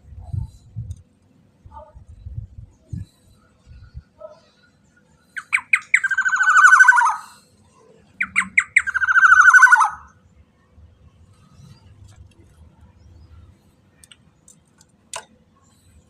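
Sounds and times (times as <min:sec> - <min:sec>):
oriole calling: 0:05.4 - 0:07.4, 0:08.2 - 0:10.2.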